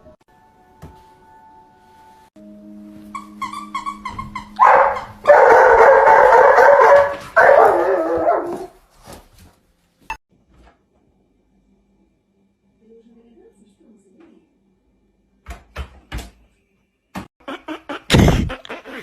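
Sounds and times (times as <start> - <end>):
dog yipping: 3.2 - 8.7
dog howling: 4.6 - 8.7.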